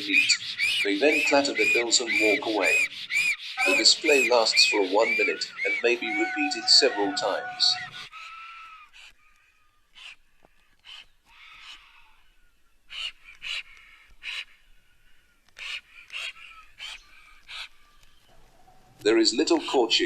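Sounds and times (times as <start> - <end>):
harsh bird calls: 0.0 - 20.0
faint steady high tone: 3.6 - 4.3.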